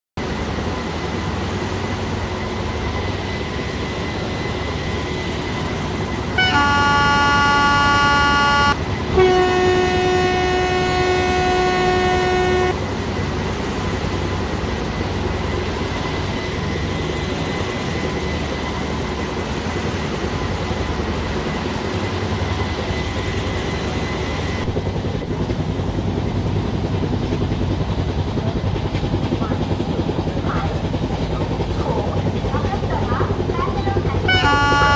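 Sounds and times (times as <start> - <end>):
train noise: 0.2 - 34.9
locomotive horn blasts: 6.4 - 12.9, 34.2 - 34.9.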